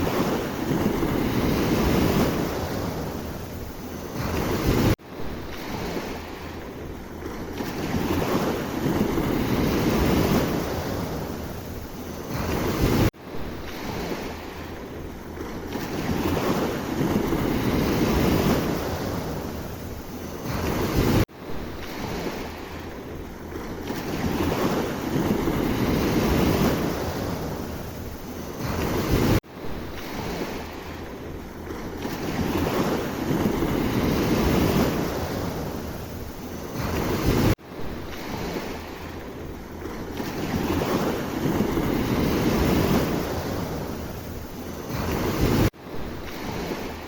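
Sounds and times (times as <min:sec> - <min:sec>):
sea waves breaking: 0:00.0 - 0:47.0
wind on microphone: 0:00.0 - 0:47.0.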